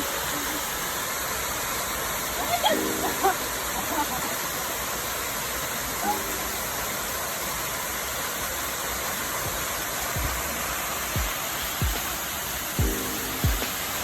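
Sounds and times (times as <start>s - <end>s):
flowing water rushing: 0.0s - 14.0s.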